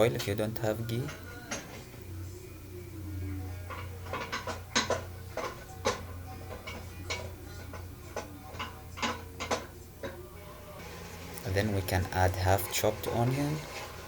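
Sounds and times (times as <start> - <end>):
utensil scraping a cooking pan: 3.1 - 10.2, 10.8 - 14.0.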